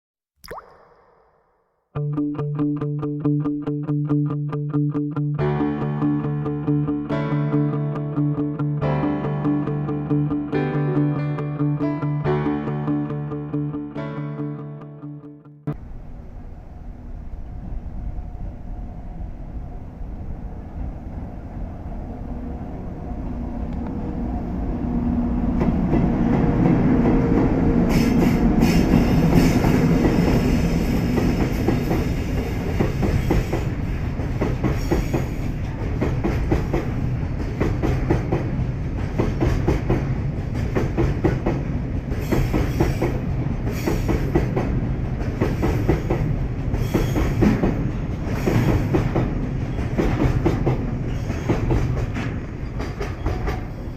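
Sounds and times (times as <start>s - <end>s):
train rumbling hum: 15.7s - 53.9s.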